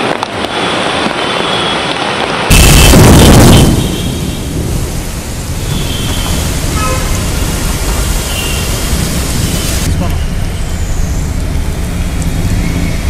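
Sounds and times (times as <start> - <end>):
heavy rain on a street: 0.0 - 13.0
running water: 5.4 - 10.0.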